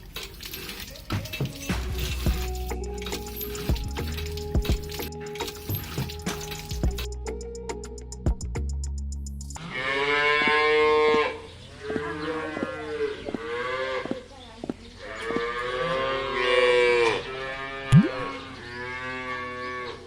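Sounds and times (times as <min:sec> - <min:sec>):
cow mooing: 0:15.1 - 0:17.9.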